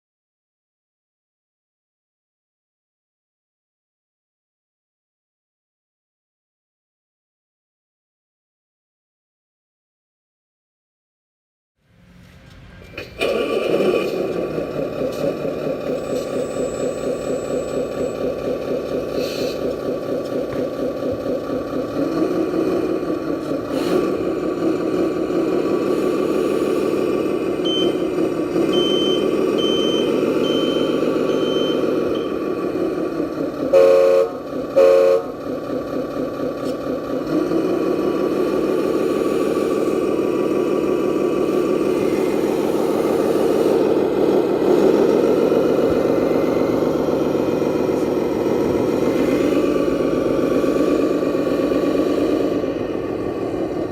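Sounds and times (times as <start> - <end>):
toy truck engine running: 13.2 - 53.9
reversing alarm beeps: 15.9 - 18.3, 27.6 - 28.1, 28.7 - 32.4
horn blasts: 33.7 - 35.4.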